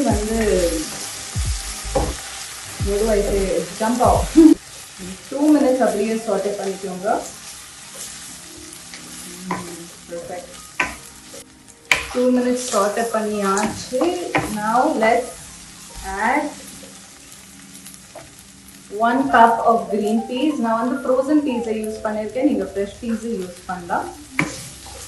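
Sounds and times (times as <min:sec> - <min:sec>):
person speaking: 0:00.0 - 0:02.1, 0:02.8 - 0:04.6, 0:18.9 - 0:24.2
vegetables sizzling in oil: 0:00.0 - 0:25.0.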